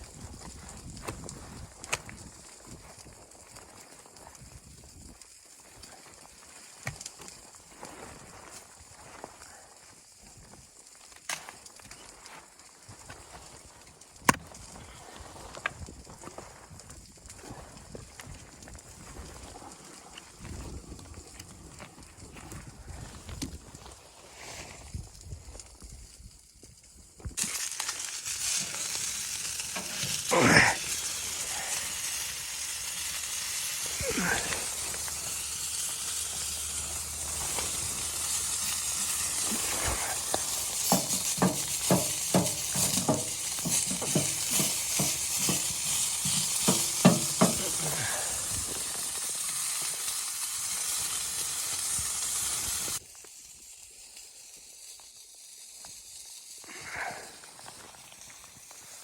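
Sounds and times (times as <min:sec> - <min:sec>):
food sizzling in a frying pan: 0:27.3 - 0:59.0.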